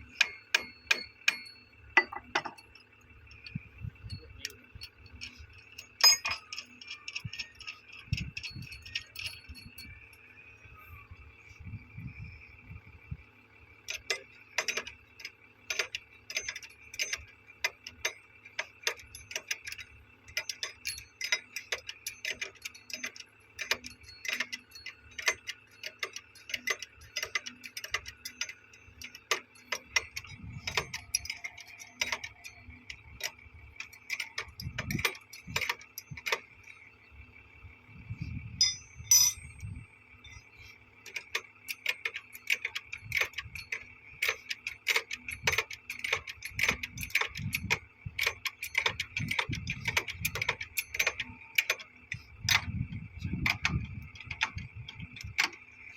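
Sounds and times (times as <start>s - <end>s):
metallic clicks and taps of tools: 0.0s - 10.2s, 13.9s - 36.8s, 38.6s - 55.9s
high-pitched drone: 3.4s - 13.0s.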